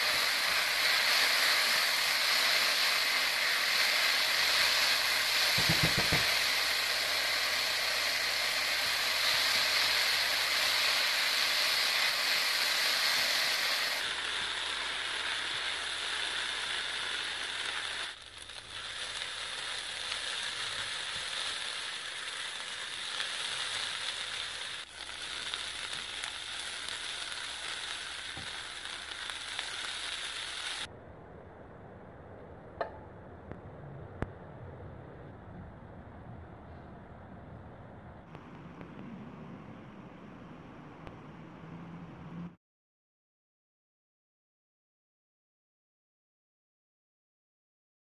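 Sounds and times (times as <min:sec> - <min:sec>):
rice sizzling in a wok: 0:00.0 - 0:30.9.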